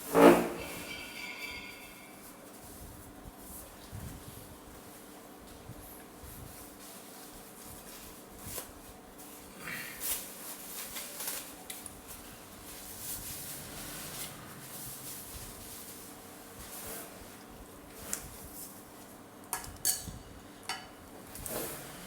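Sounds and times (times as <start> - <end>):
spoon and chopsticks in bowl: 0.5 - 2.4.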